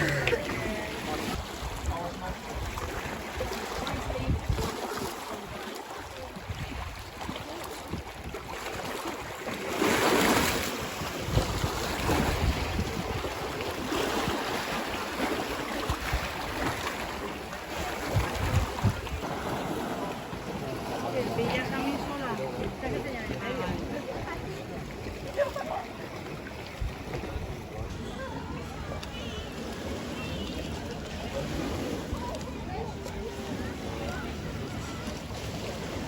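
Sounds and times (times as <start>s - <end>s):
wind buffeting microphone: 0.0s - 4.8s, 10.8s - 13.9s, 17.8s - 19.7s
sea waves: 0.0s - 36.0s.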